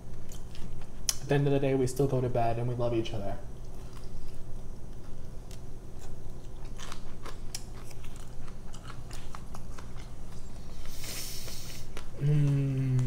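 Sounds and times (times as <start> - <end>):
brief hiss: 10.9 - 11.8.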